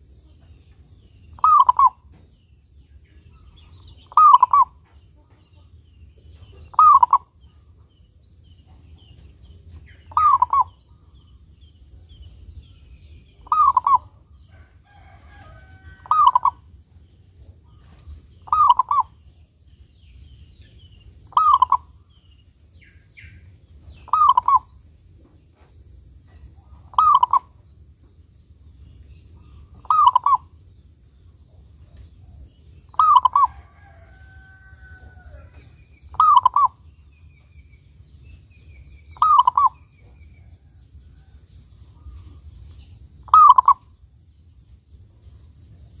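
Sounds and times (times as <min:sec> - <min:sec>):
faint high chirping: 0:00.0 - 0:46.0
dove cooing: 0:01.4 - 0:02.1, 0:03.8 - 0:04.8, 0:06.7 - 0:07.4, 0:10.1 - 0:10.8, 0:13.4 - 0:16.6, 0:18.4 - 0:19.2, 0:21.3 - 0:22.0, 0:24.0 - 0:24.7, 0:26.6 - 0:27.6, 0:29.5 - 0:30.5, 0:32.9 - 0:36.8, 0:39.2 - 0:40.8, 0:43.2 - 0:43.8.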